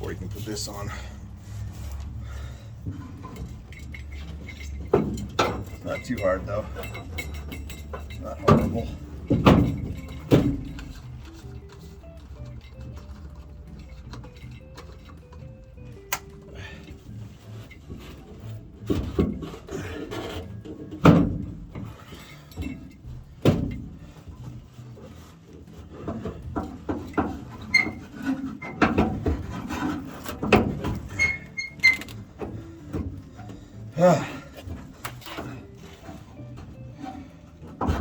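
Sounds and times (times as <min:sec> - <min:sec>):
tools and parts knocking: 0:02.8 - 0:15.5, 0:17.5 - 0:33.6.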